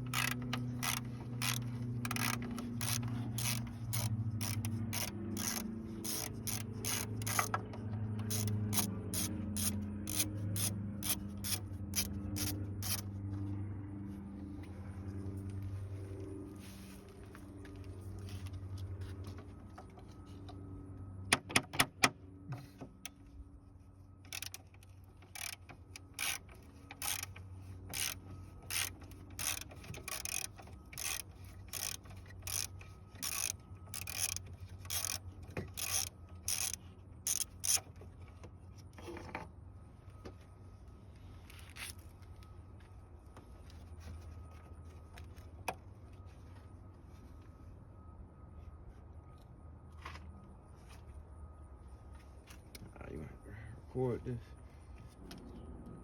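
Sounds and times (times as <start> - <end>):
ratchet wrench clicking: 0.0 - 7.6, 8.2 - 13.1, 24.3 - 37.9
ratcheting strokes: 0.0 - 7.6, 8.2 - 13.1, 24.3 - 37.9.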